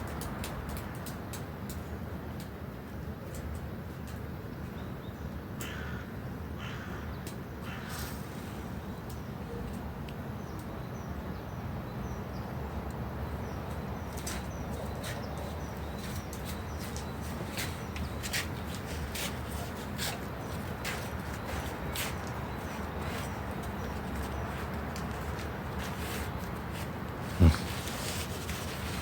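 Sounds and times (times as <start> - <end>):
crow cawing: 5.6 - 8.0
small birds chirping: 6.6 - 29.0.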